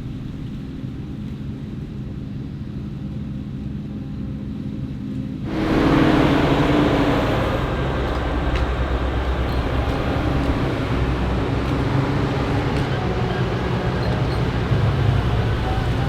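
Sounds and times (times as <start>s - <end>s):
diesel engine drone: 5.5s - 16.0s
steady rushing noise: 5.5s - 16.0s.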